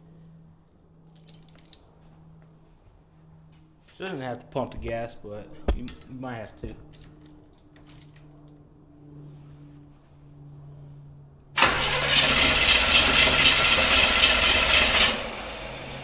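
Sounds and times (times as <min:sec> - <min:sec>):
car starter engaging: 0:11.6 - 0:15.4
car engine running loudly: 0:11.6 - 0:16.0.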